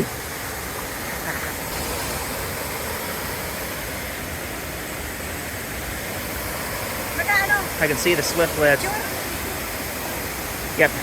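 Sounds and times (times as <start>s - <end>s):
flowing water rushing: 0.0s - 11.0s.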